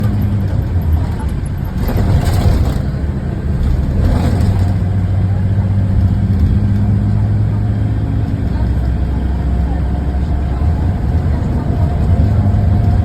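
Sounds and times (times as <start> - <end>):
diesel coach engine humming: 0.0 - 13.0.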